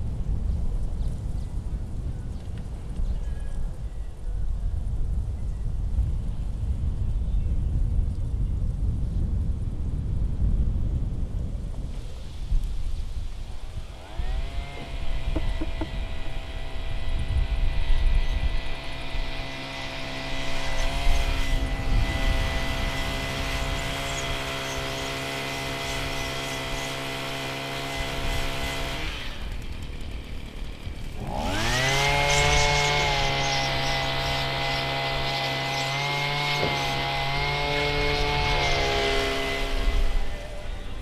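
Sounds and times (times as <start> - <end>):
machine motor whining: 13.6 - 41.0
knocking and rumbling: 14.6 - 16.8.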